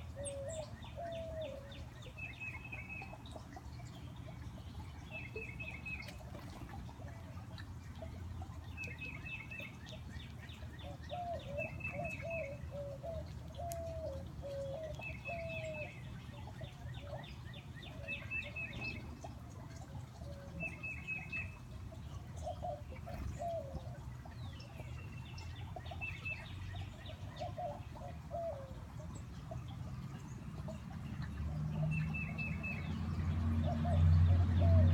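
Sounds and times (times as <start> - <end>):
bird wavering calls: 0.0 - 3.5, 10.7 - 19.0, 22.2 - 29.5.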